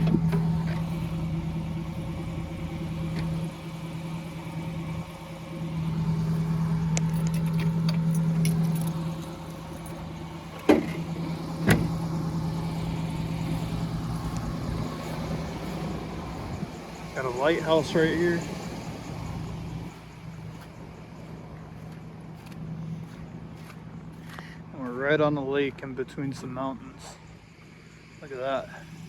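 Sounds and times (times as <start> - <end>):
van engine idling: 0.0 - 29.0.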